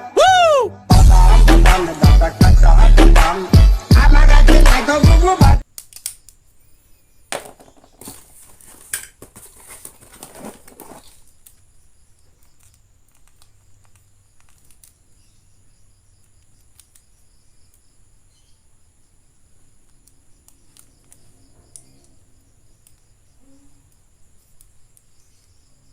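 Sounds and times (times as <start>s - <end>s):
music: 0.0s - 5.6s
packaging crinkling and rustling: 7.4s - 11.7s
faint handling clicks: 11.2s - 15.2s, 16.2s - 18.0s, 19.6s - 25.6s.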